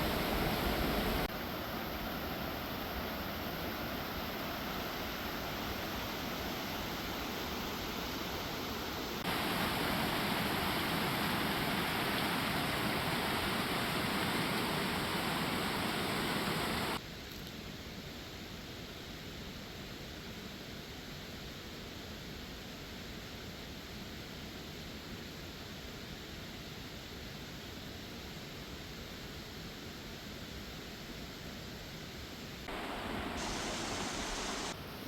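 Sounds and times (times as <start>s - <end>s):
rushing mountain water: 0.0s - 17.0s, 32.6s - 35.0s.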